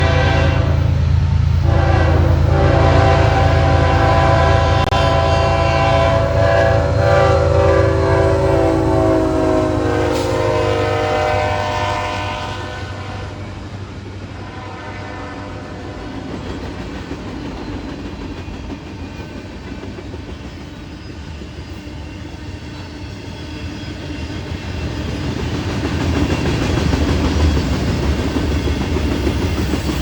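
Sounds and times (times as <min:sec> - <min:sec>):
train air horn: 0:00.0 - 0:16.4
diesel locomotive engines rumbling: 0:00.0 - 0:30.0.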